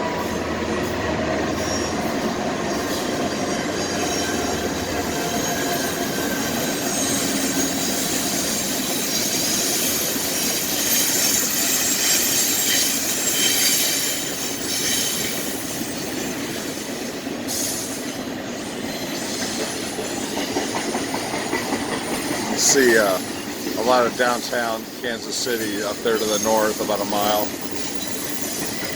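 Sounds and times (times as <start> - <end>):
freight train cars rolling: 0.0 - 28.9
wheels clicking over rail joints: 0.0 - 28.9
faint wheel squeal: 1.5 - 2.2, 3.9 - 15.7.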